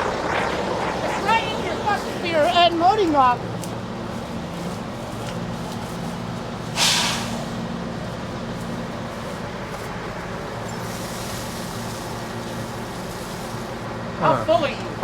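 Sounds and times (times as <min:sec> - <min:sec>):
loud hiss: 0:06.8 - 0:07.6.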